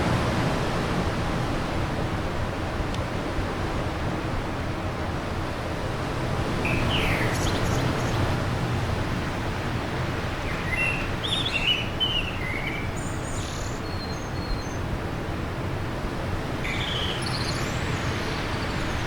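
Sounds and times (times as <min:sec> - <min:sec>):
bird chirps and calls: 0:06.6 - 0:08.2, 0:10.4 - 0:14.8, 0:16.6 - 0:19.0.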